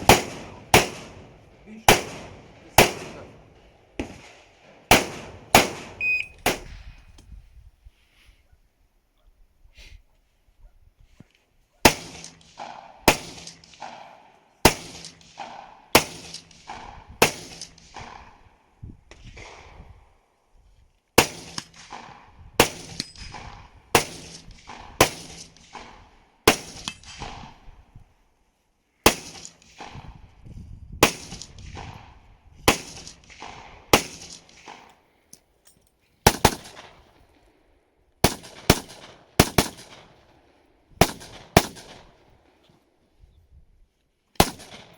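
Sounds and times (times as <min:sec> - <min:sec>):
rifle shots with echo: 0:00.0 - 0:06.9, 0:11.8 - 0:19.9, 0:21.2 - 0:27.9, 0:29.0 - 0:30.2, 0:31.0 - 0:35.0, 0:36.2 - 0:37.5, 0:38.2 - 0:42.5, 0:44.4 - 0:44.9.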